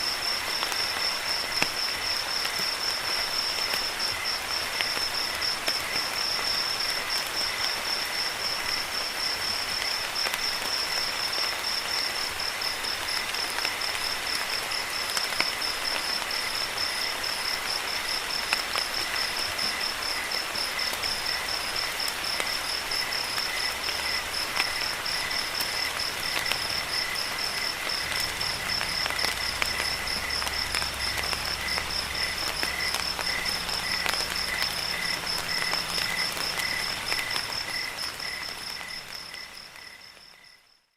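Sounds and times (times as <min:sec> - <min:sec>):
crickets chirping: 0:00.0 - 0:40.9
steady rain: 0:00.0 - 0:40.9
raindrop ticks: 0:17.6 - 0:40.6.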